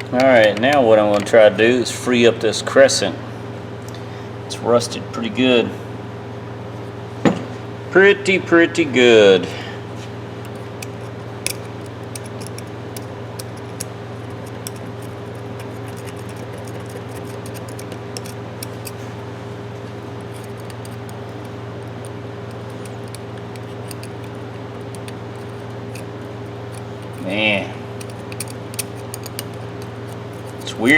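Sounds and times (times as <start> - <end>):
steady low hum: 0.0 - 30.9
metallic clicks of wrench: 10.5 - 19.0, 20.2 - 26.1, 28.0 - 30.9.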